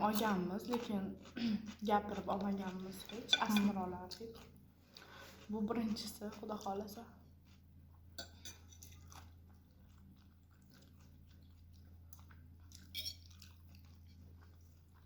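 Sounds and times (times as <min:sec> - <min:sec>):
person chewing noodles: 0:04.1 - 0:05.5, 0:07.3 - 0:15.0.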